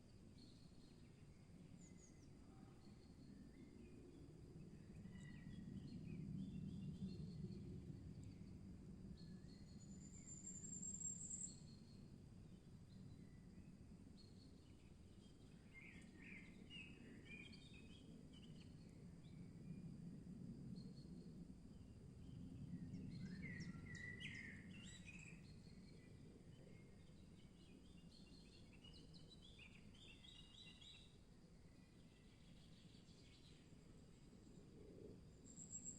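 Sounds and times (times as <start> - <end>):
thin rising bird trill: 35.5 - 35.9.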